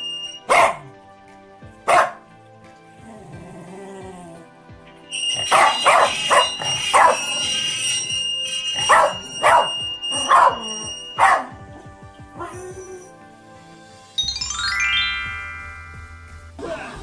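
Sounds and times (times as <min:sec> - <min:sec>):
dog barking: 0:00.4 - 0:00.9, 0:01.9 - 0:02.2, 0:05.4 - 0:07.3, 0:08.8 - 0:11.6.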